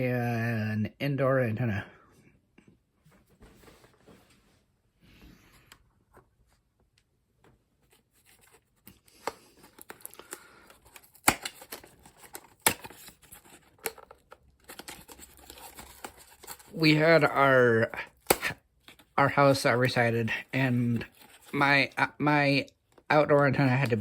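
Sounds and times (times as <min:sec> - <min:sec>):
packaging rustling and scraping: 0:07.8 - 0:17.3, 0:19.8 - 0:21.9
sharp snaps of packaging: 0:09.1 - 0:16.6, 0:18.1 - 0:19.0.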